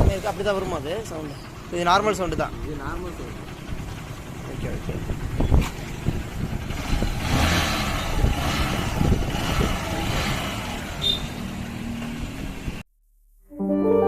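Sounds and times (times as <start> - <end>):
engine knocking and clattering: 0.0 - 12.8
soft sustained music: 13.5 - 14.0.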